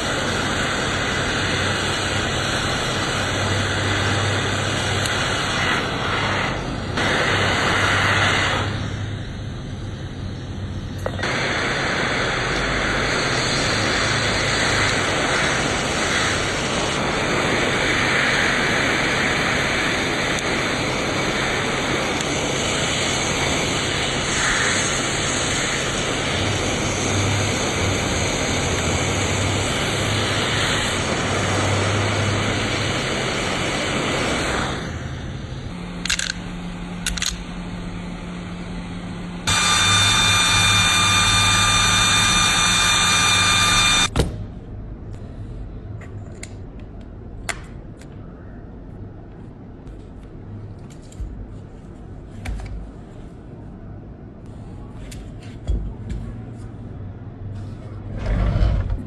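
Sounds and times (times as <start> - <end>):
hot-air blower hissing: 0.0 - 44.1.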